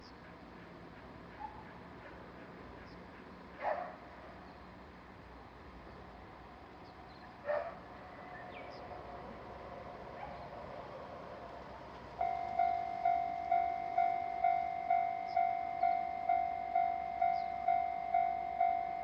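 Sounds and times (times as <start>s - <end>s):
dog barking: 3.6s - 4.0s, 7.4s - 7.8s, 10.2s - 10.5s.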